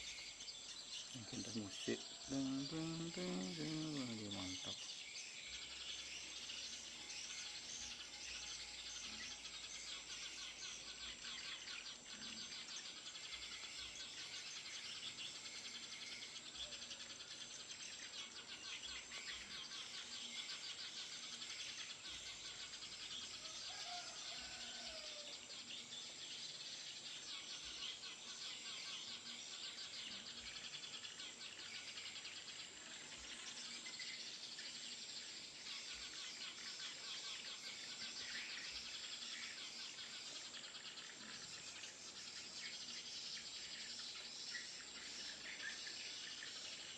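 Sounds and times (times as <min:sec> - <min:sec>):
sparrows chirping: 0:00.0 - 0:46.9
steady high buzz: 0:02.3 - 0:04.7.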